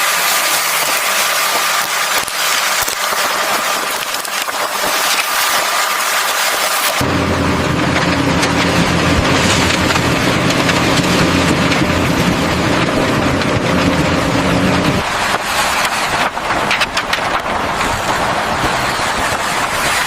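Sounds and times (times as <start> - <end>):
machinery engine hum: 6.9 - 20.0.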